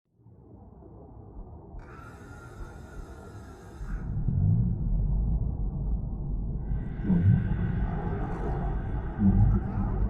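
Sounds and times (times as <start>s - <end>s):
hiss: 1.8s - 4.1s
underwater low rumble: 4.1s - 10.0s.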